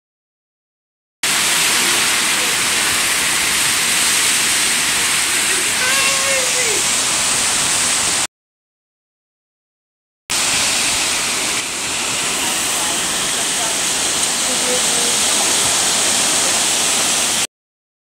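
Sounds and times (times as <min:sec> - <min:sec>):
heavy rain pouring: 0:01.2 - 0:08.3, 0:10.3 - 0:17.5.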